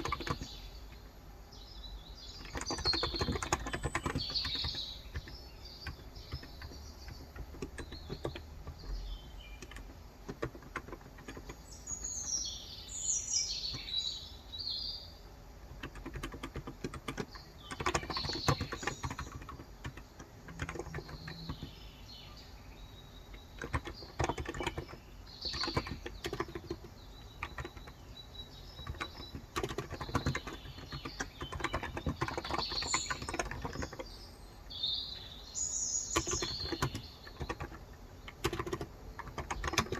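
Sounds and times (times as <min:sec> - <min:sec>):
soft keyboard typing: 0:00.0 - 0:01.0, 0:02.3 - 0:12.4, 0:15.6 - 0:21.9, 0:23.2 - 0:34.2, 0:36.0 - 0:39.9
birds chirping: 0:00.0 - 0:39.9.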